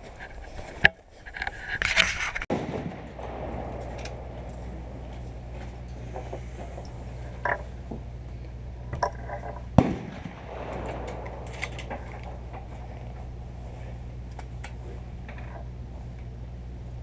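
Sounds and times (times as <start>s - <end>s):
low mechanical hum: 0.0s - 17.0s
sharp bang: 2.5s - 8.2s, 9.0s - 15.2s.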